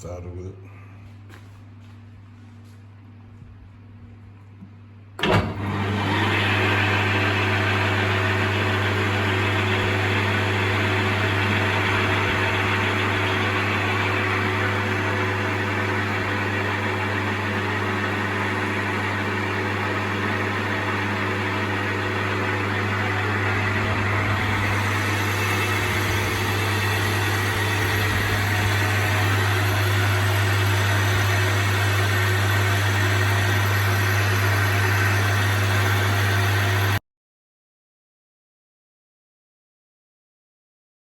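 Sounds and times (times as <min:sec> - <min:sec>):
lathe motor hum: 0:05.2 - 0:37.0.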